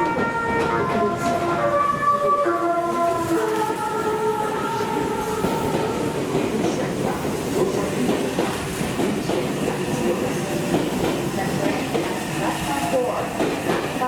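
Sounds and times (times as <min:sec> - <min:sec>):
freight train wheels clattering: 0:03.2 - 0:14.0.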